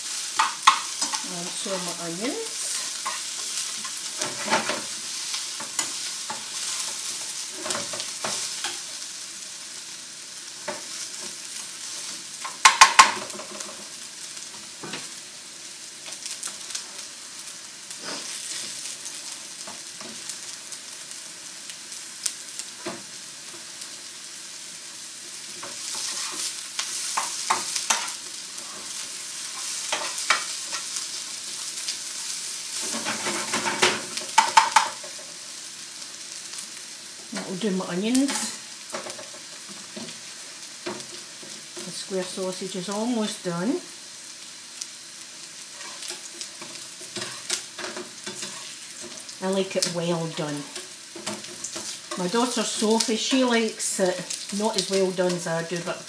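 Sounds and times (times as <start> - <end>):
food sizzling in pans: 0.0 - 56.0
utensil scraping pan: 25.6 - 30.9, 45.7 - 49.2.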